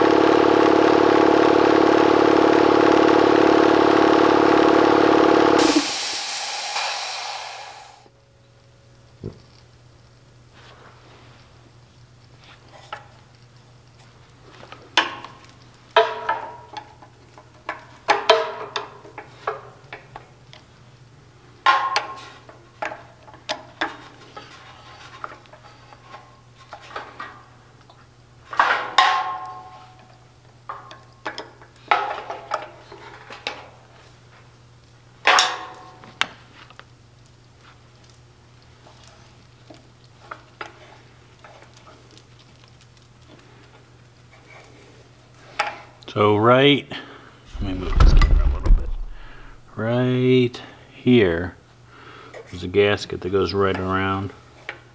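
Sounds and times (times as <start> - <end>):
faint low hum: 47.1 - 50.0.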